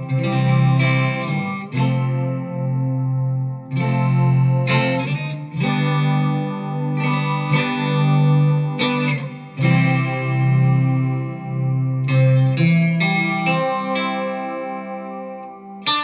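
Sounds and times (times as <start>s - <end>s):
electric guitar synth notes: 0.0s - 16.0s.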